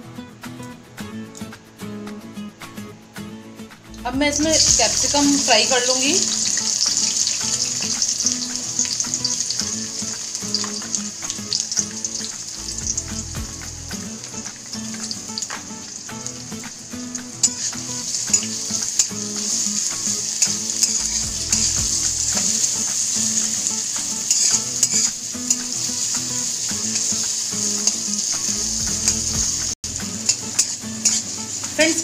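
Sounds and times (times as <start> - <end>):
vegetables sizzling in hot oil: 4.1 - 32.0
spatula scraping and tapping pan: 14.3 - 31.8.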